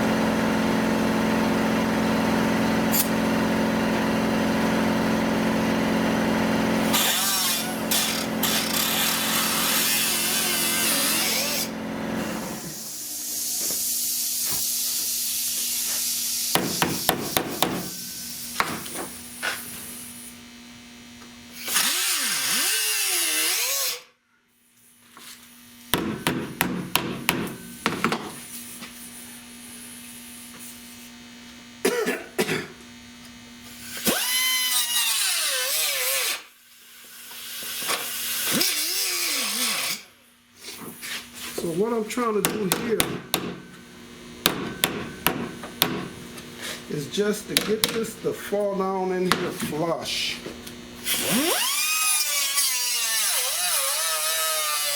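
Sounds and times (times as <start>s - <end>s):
grinder whining on sheet steel: 0.0s - 20.3s, 21.5s - 24.1s, 33.6s - 40.2s, 43.6s - 54.9s.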